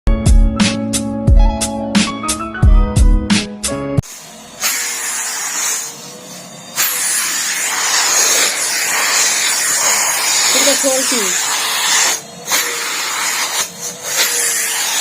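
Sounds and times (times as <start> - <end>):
intro music: 0.1 - 4.1
vacuum cleaner hissing: 4.0 - 15.0.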